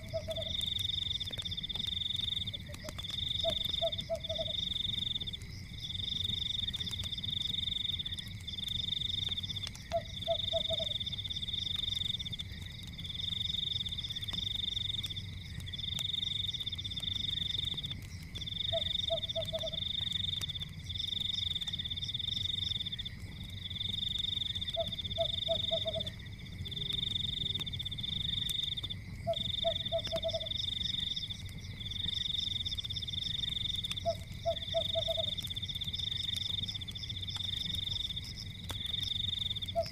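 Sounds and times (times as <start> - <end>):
frog croaking: 0.0 - 0.6, 2.5 - 4.6, 9.8 - 11.0, 18.6 - 19.9, 24.6 - 27.6, 29.2 - 30.5, 33.9 - 35.4, 39.7 - 39.9
faint crackles: 0.0 - 39.9
frogs trilling: 0.0 - 39.9.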